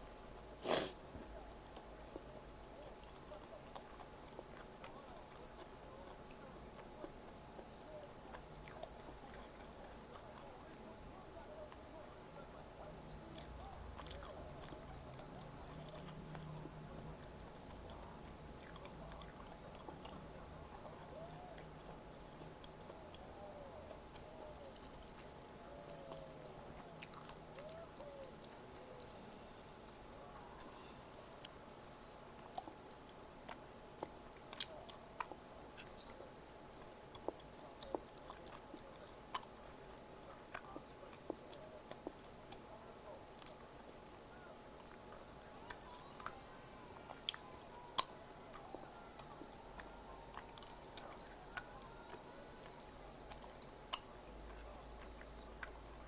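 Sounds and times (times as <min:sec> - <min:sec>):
person chewing wetly: 0:08.3 - 0:10.5, 0:13.3 - 0:16.7, 0:17.6 - 0:31.5, 0:36.8 - 0:42.7, 0:47.0 - 0:56.0.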